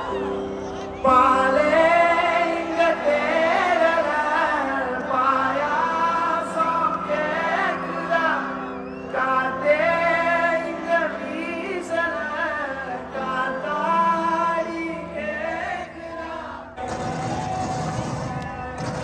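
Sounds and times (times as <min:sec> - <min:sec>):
person singing live: 0:00.0 - 0:19.0.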